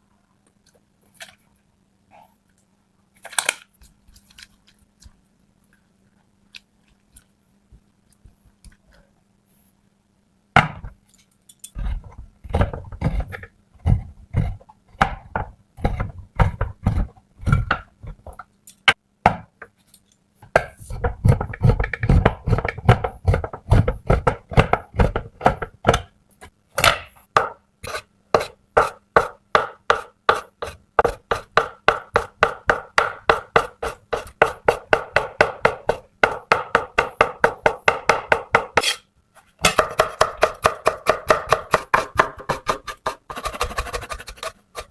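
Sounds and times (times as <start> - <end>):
knife chopping on cutting board: 11.8 - 17.9, 20.6 - 26.1, 26.8 - 39.0, 39.6 - 44.9.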